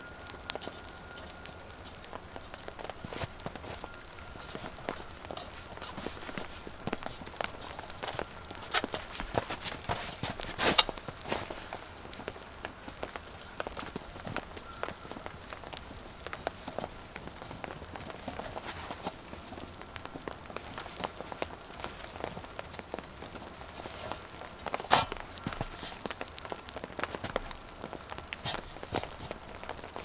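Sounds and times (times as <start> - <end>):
rain pattering: 0.0 - 30.0.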